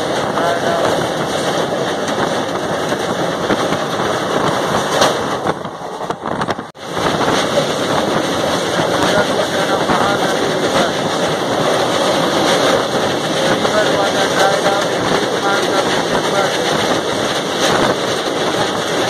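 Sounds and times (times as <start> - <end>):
train coach running noise: 0.0 - 19.0
wind buffeting microphone: 0.0 - 19.0.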